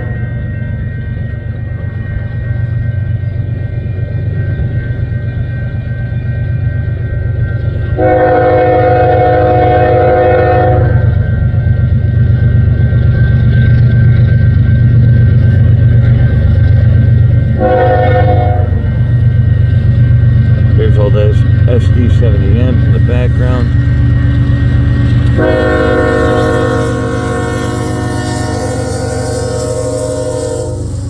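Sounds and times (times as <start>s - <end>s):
diesel locomotive rumble: 0.0s - 31.0s
locomotive horn blast: 8.0s - 11.1s, 17.6s - 18.9s, 25.2s - 31.0s.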